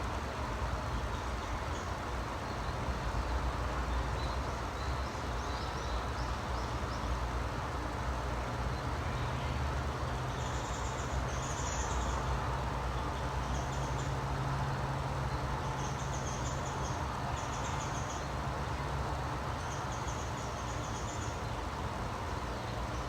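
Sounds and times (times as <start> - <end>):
low rumble and hiss: 0.0 - 23.0
small birds chirping: 0.7 - 23.0.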